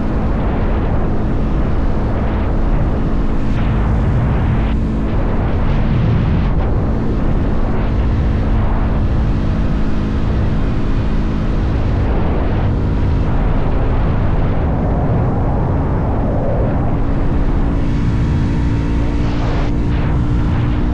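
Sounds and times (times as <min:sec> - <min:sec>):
wind rushing over microphone: 0:00.0 - 0:20.9
motorcycle engine cruising: 0:16.0 - 0:20.9.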